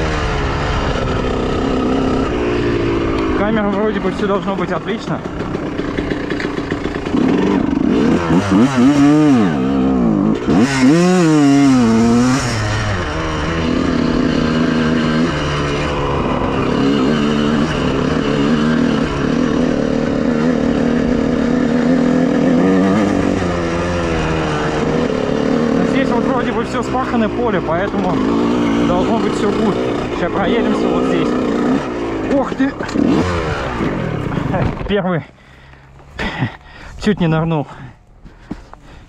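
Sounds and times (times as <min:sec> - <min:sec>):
two-stroke motorcycle engine revving: 0:00.0 - 0:36.9.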